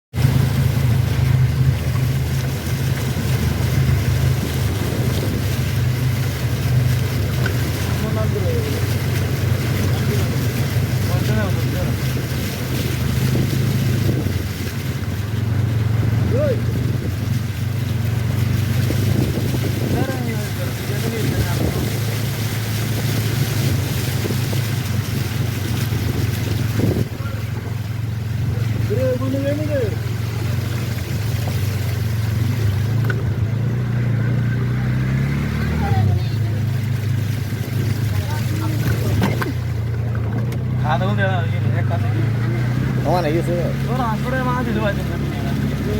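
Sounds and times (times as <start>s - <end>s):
motor engine humming: 0.1s - 45.9s
wind on microphone: 0.2s - 8.2s, 9.0s - 28.9s.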